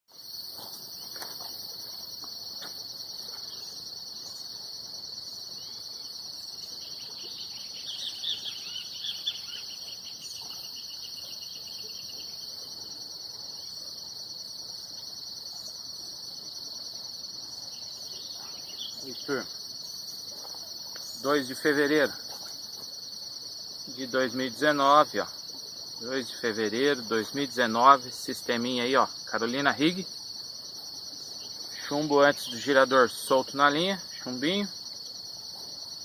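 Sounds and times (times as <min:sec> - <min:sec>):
insects trilling: 0:00.1 - 0:36.0
bird chirping: 0:05.3 - 0:13.8, 0:17.5 - 0:21.5.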